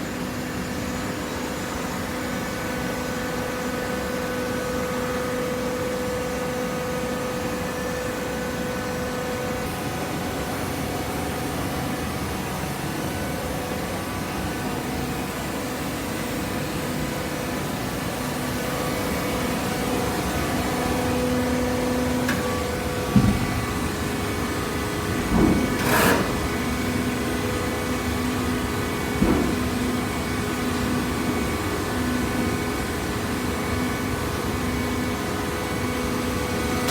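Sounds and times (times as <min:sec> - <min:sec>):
baler motor hum: 0:18.8 - 0:27.6.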